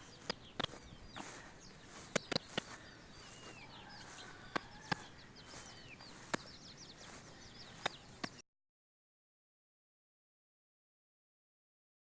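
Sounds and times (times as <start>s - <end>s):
baby chicks peeping: 0.0s - 8.4s
sharp clicks: 0.2s - 0.8s, 2.1s - 2.7s.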